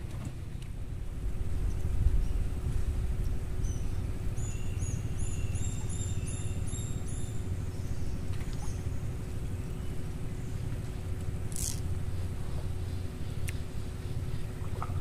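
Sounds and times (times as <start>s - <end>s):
low rumble with hum: 0.0s - 15.0s
small bird chirping: 3.6s - 10.6s.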